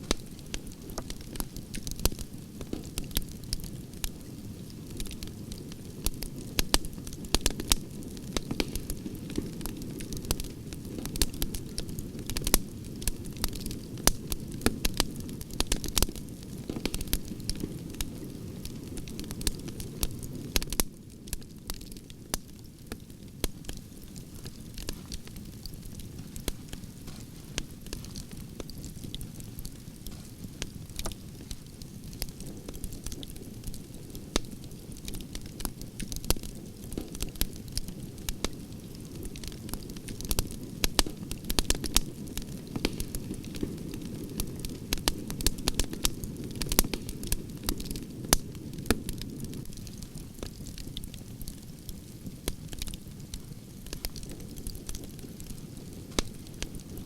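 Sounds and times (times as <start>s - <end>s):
campfire crackling: 0.0s - 57.0s.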